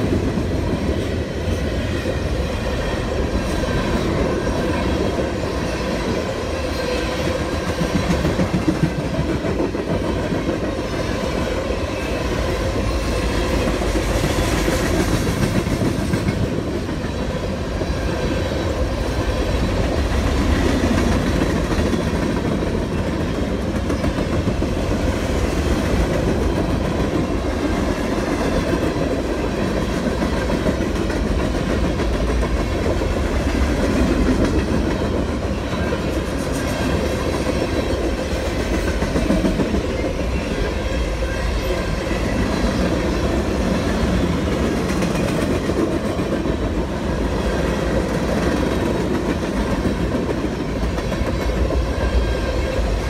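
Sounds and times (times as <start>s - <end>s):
freight train wheels rumbling: 0.0s - 53.0s.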